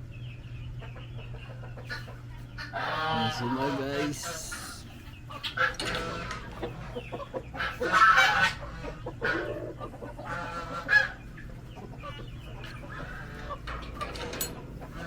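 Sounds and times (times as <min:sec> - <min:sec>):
chickens clucking: 0:00.0 - 0:15.0
chickens squawking: 0:00.1 - 0:15.0.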